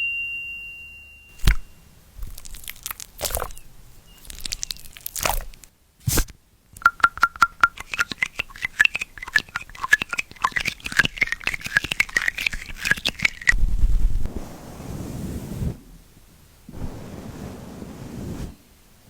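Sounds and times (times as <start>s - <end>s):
dog chewing and crunching food: 2.2s - 7.0s, 7.6s - 13.6s
low rumble: 13.6s - 18.2s.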